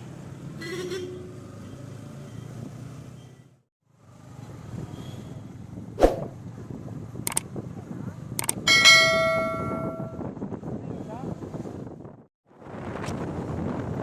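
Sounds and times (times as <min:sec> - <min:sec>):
motorcycle engine and road rumble: 0:00.0 - 0:14.0
clicks: 0:07.3 - 0:07.5.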